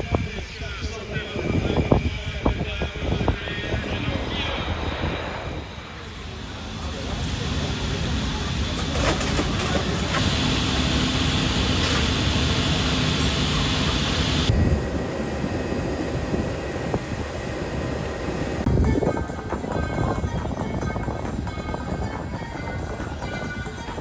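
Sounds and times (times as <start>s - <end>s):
aircraft engine rumble: 0.0s - 24.0s.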